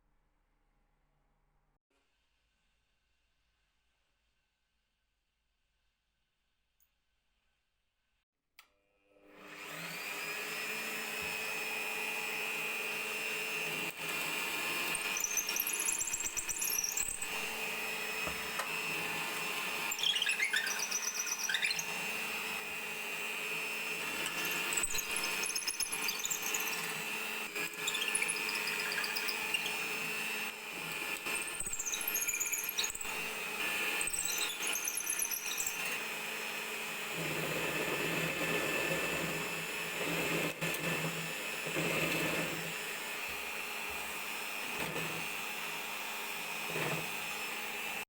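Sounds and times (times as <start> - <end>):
small electric power tool running: 9.2 - 48.0
high squeals: 19.9 - 22.2, 27.6 - 30.0.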